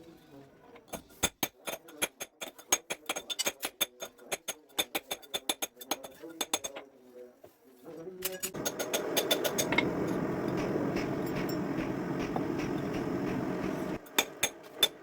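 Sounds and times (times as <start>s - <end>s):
steady roaring noise: 8.6s - 14.6s.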